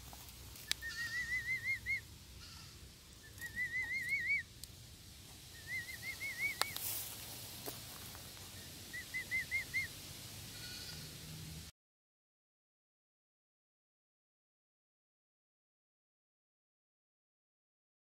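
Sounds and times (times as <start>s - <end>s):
bird whistling rising notes: 0.7s - 2.1s, 3.2s - 4.5s, 5.5s - 6.8s, 8.5s - 10.0s.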